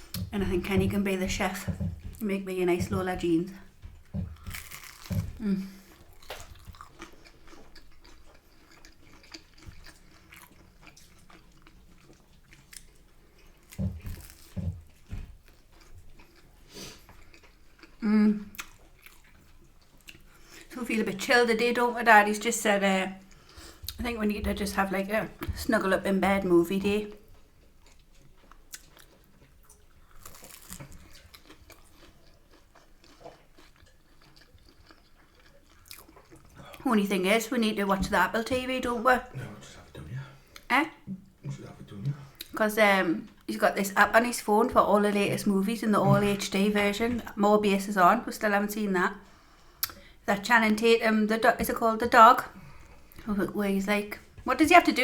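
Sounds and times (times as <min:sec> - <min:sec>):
person chewing crunchy food: 0:03.7 - 0:20.7, 0:27.2 - 0:36.8
crisp crunches: 0:04.4 - 0:05.6, 0:30.1 - 0:31.5.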